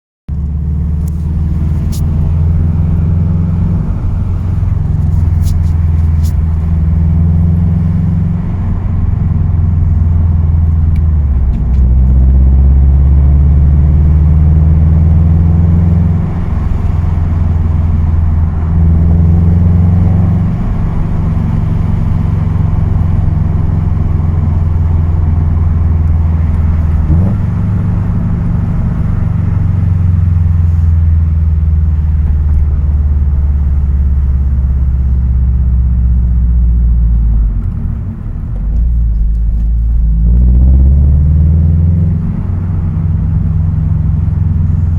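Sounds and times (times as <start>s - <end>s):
car engine droning: 0.3s - 44.9s
engine rattle: 0.3s - 44.9s.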